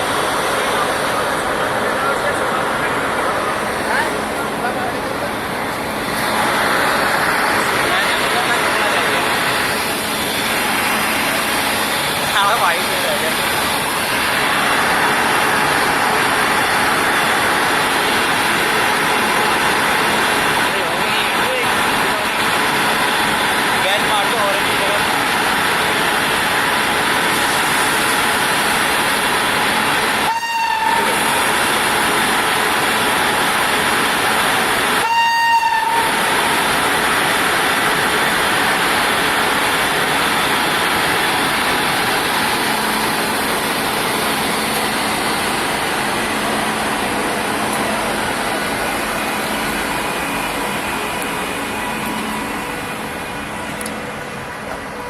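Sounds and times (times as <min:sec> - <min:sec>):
moving train noise: 0:00.0 - 0:55.0
locomotive horn: 0:30.2 - 0:31.3, 0:35.0 - 0:36.2.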